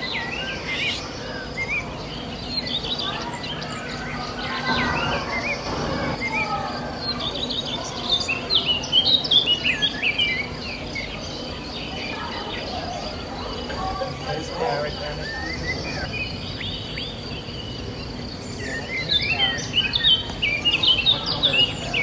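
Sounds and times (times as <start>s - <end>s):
small birds chirping: 0.0s - 22.0s
steady low hum: 1.6s - 7.2s.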